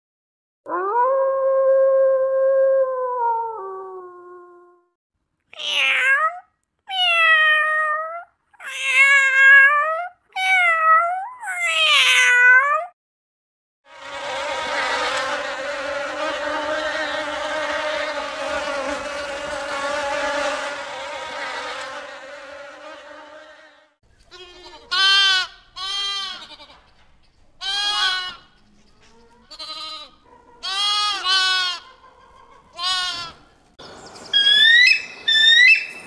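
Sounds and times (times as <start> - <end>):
cat meowing: 5.5 - 12.9
bees buzzing: 13.9 - 23.9.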